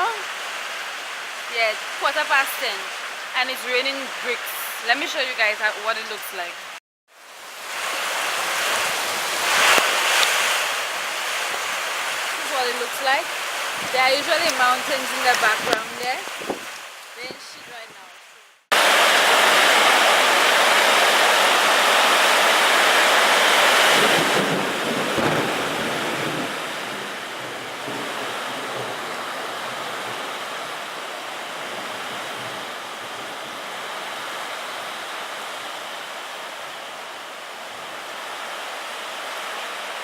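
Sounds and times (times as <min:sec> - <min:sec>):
heavy rain hissing: 0:00.0 - 0:40.0
wind noise on microphone: 0:07.8 - 0:18.0, 0:23.7 - 0:30.5.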